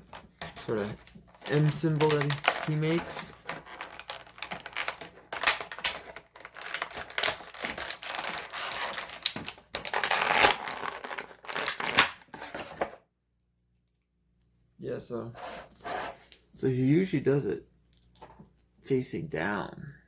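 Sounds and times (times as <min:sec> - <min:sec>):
plastic packaging crinkling: 0:00.2 - 0:13.0.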